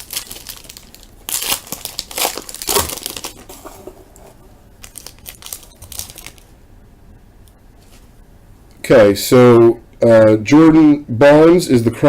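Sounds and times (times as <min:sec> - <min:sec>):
wrapper crinkling: 0:00.0 - 0:06.5
wrapper ripping: 0:00.0 - 0:06.5.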